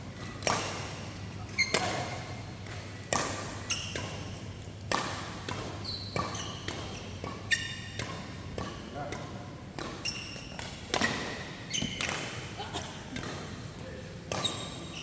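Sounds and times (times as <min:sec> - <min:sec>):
rackets hitting shuttlecock: 0:00.3 - 0:13.7, 0:14.3 - 0:15.0
shoes squeaking on floor: 0:01.5 - 0:02.2, 0:05.8 - 0:08.0, 0:09.8 - 0:12.6, 0:14.3 - 0:15.0.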